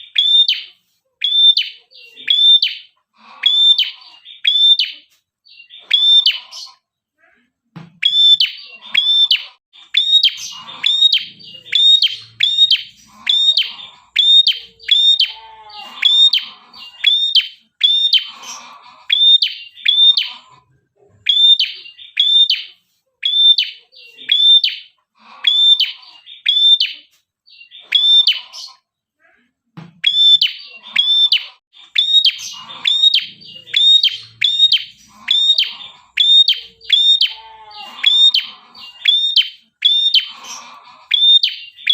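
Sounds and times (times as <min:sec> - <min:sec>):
lower chattering bird calls: 0:08.0 - 0:20.6, 0:30.0 - 0:41.9.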